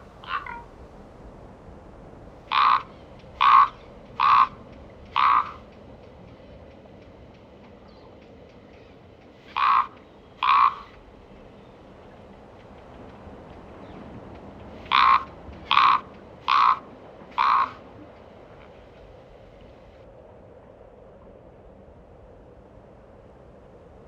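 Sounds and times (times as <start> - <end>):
bird calling: 0.0 - 0.7, 2.5 - 6.6, 7.5 - 11.9, 13.5 - 19.9.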